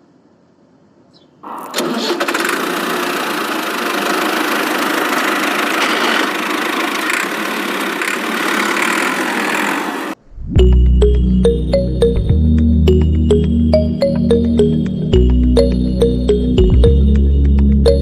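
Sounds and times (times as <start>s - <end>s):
motor running steadily: 2.6s - 10.2s
music: 10.5s - 18.0s.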